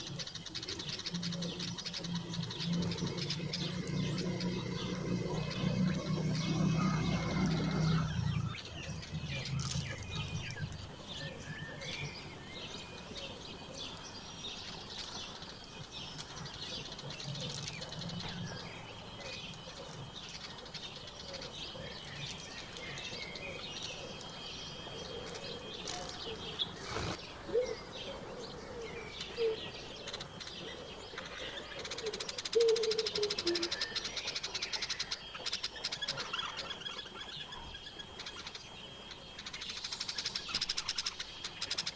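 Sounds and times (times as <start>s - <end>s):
low repeated bird calls: 0.0s - 41.9s
songbirds chirping: 0.0s - 41.9s.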